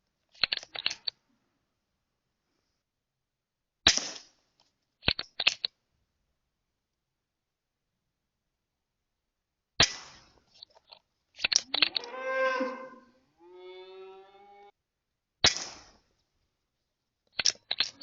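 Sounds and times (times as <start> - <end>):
air rifle shots: 9.8 - 10.3, 15.4 - 16.0
cow mooing: 11.8 - 14.8.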